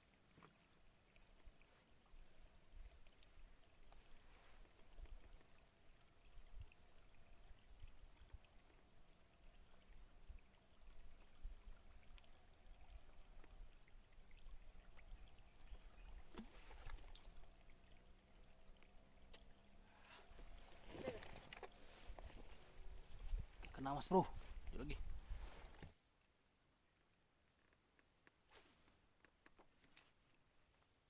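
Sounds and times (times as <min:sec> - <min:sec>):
faint clicks: 0:18.7 - 0:19.7
wind rumble on microphone: 0:22.2 - 0:23.7, 0:24.3 - 0:25.7.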